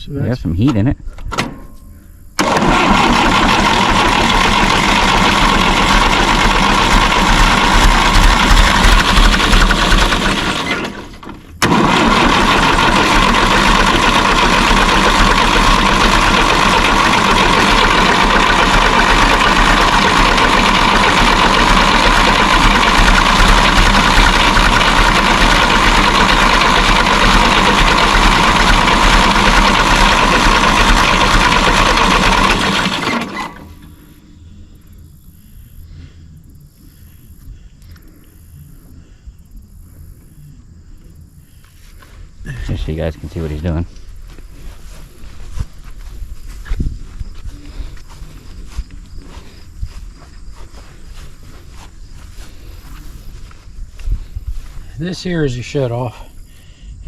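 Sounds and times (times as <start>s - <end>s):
starter cranking diesel engine: 2.4s - 34.2s.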